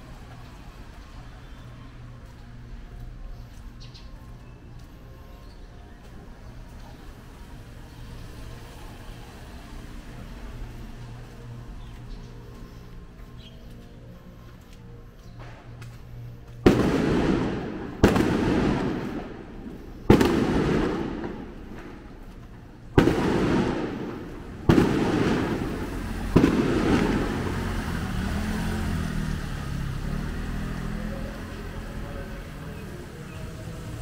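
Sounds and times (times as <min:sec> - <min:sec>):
loud fireworks bangs: 0:16.6 - 0:28.8.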